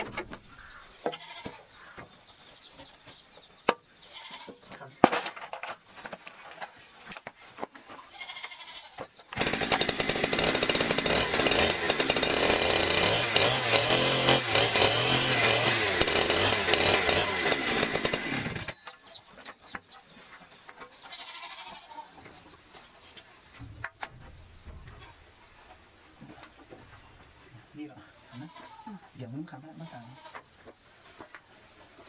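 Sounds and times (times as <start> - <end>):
loud motor-driven tool running: 9.4 - 18.8.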